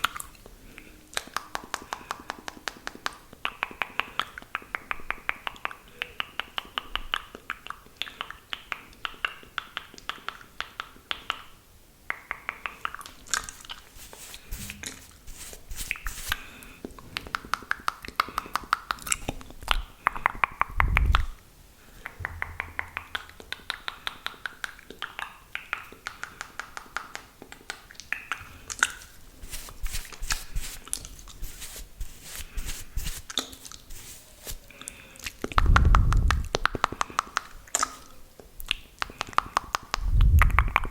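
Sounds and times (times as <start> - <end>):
saliva clicks and lip smacks: 0.0 - 11.5, 12.1 - 13.9, 15.9 - 21.4, 22.0 - 29.1, 34.7 - 40.9
soft hiss: 0.0 - 40.9.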